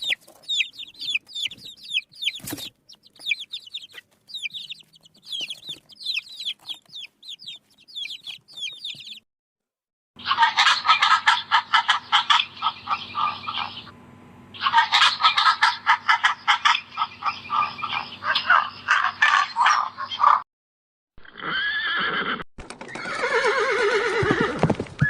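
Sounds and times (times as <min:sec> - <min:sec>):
chicks peeping: 0:00.0 - 0:09.2, 0:10.2 - 0:20.4
low steady hum: 0:10.2 - 0:18.8.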